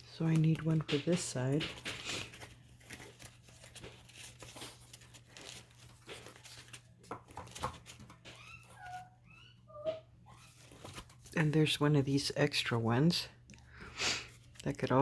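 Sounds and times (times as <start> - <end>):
paper rustling and tapping: 0.0 - 9.0
high-pitched animal calls: 8.3 - 10.5.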